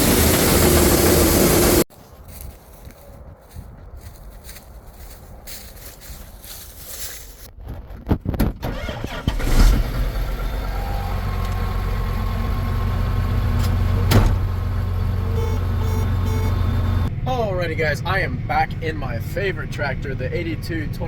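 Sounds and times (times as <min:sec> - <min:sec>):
tractor diesel engine idling: 0:08.7 - 0:21.0.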